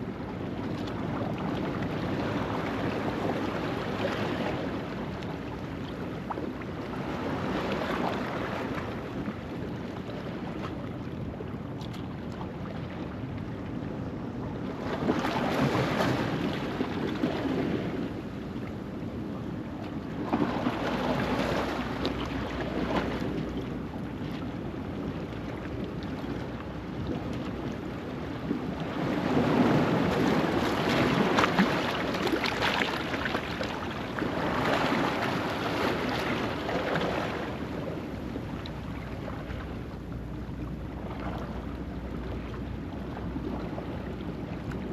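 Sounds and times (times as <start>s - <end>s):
waves breaking on rocky shore: 28.7s - 39.7s.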